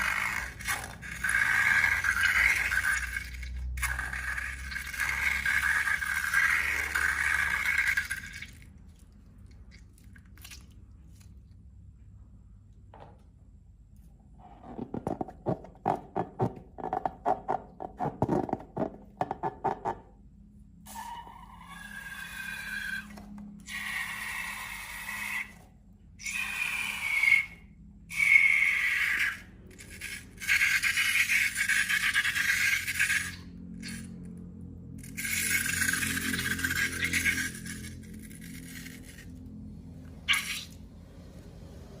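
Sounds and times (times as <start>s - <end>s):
slime squelching: 0.0s - 12.0s, 35.0s - 41.8s.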